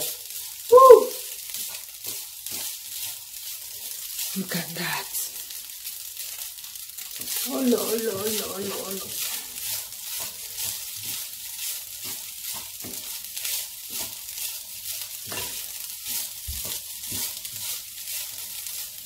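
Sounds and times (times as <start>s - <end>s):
rice sizzling in oil: 0.0s - 19.0s
wooden spatula scraping pan: 1.5s - 4.6s, 7.0s - 19.0s.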